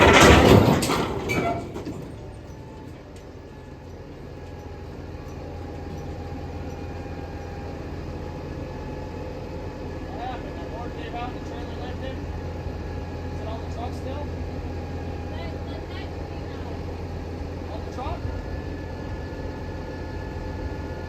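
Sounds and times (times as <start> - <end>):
loud crash: 0.0 - 2.3
vehicle engine rumbling: 0.0 - 21.0.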